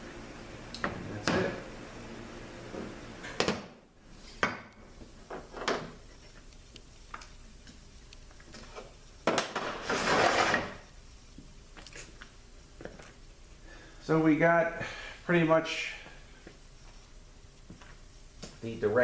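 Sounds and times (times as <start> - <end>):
scraping or rustling: 9.6 - 10.8.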